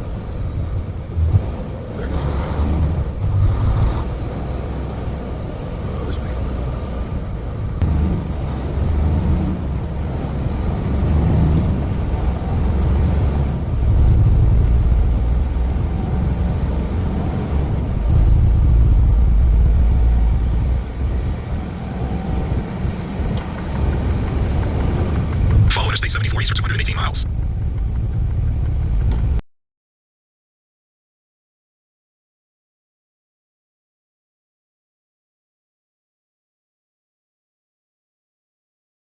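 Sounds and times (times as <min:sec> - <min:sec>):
truck diesel engine rumble: 0:00.0 - 0:29.4.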